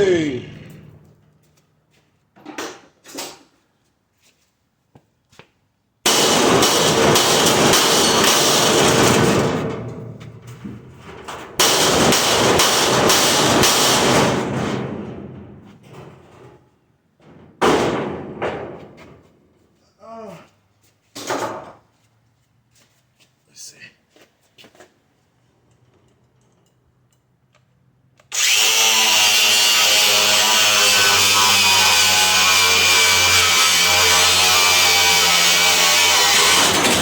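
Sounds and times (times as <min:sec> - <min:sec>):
metal banging and clattering: 0:06.1 - 0:16.6, 0:17.2 - 0:19.3, 0:35.4 - 0:37.0.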